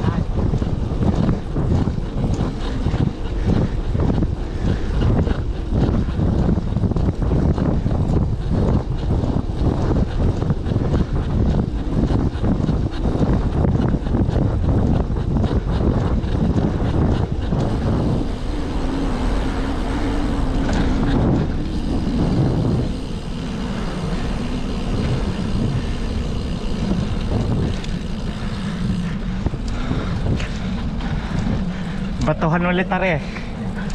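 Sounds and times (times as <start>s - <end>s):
low steady engine hum: 0.0s - 33.9s
road traffic: 0.0s - 33.9s
wind rushing over microphone: 0.0s - 33.9s.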